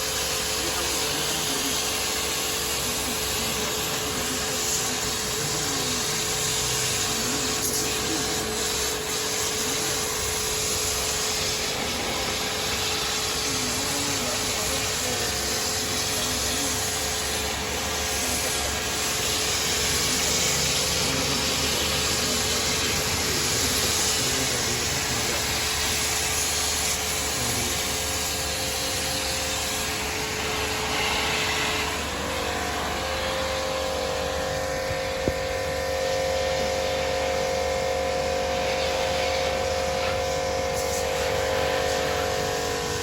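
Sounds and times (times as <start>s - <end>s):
higher steady whine: 0.0s - 43.0s
hissing rush of air: 0.0s - 43.0s.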